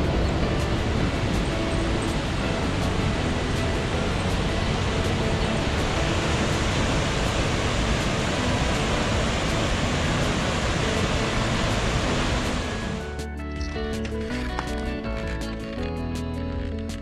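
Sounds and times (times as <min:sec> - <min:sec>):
stream water rushing: 0:00.0 - 0:13.1.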